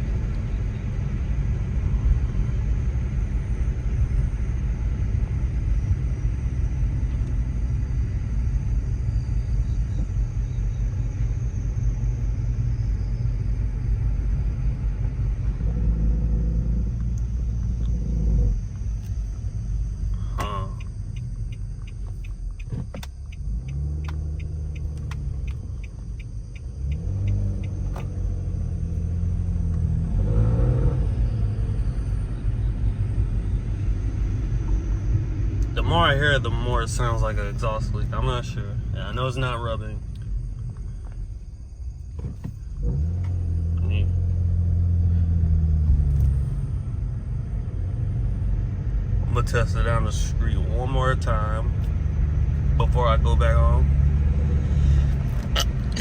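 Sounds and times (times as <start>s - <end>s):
car exhaust rumbling: 0.0s - 56.0s
light ticking: 19.9s - 29.1s.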